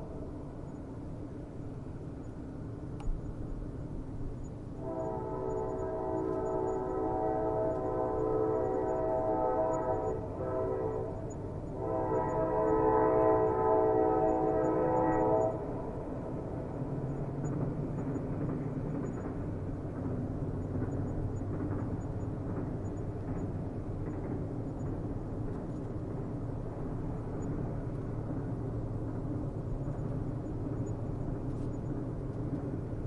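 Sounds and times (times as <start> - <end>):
train rumbling on rails: 0.0 - 33.0
train horn blasts: 4.8 - 15.8.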